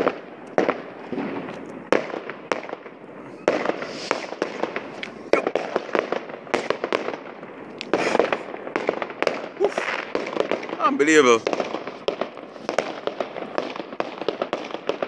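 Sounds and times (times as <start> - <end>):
fireworks bangs: 0.0 - 15.0
firework hiss: 3.2 - 15.0.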